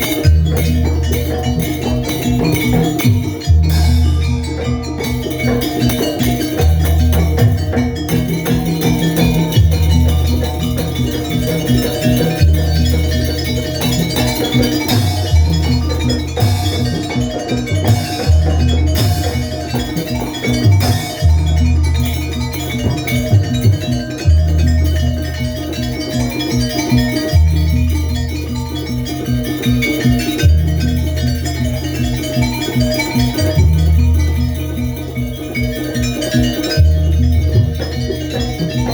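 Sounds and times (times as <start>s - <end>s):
drums: 0.0s - 38.9s
tuned metal percussion: 0.0s - 38.9s
low bass notes: 6.6s - 19.9s.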